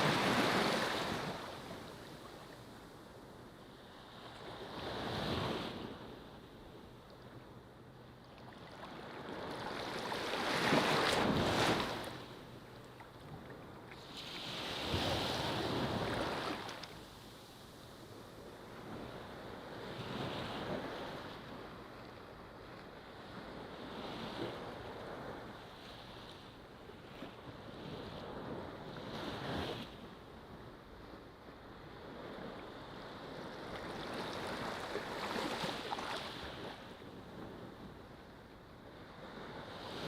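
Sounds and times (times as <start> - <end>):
ocean waves breaking on beach: 0.0 - 2.9, 8.4 - 12.6, 13.6 - 26.3, 31.7 - 37.9.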